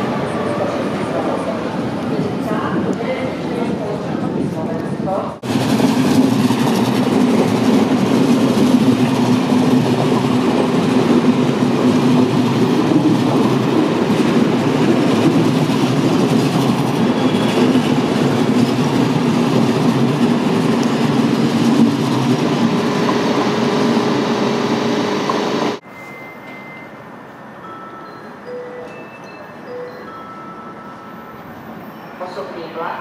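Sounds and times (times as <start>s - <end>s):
train wheels rumbling on rails: 0.0s - 25.8s.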